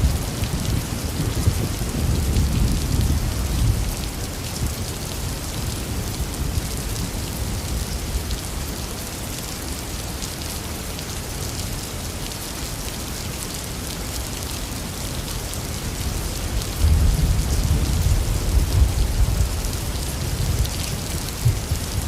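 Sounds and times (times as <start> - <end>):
low thunder rumbling: 0.0 - 8.3, 16.4 - 22.0
heavy rain falling: 0.0 - 22.0.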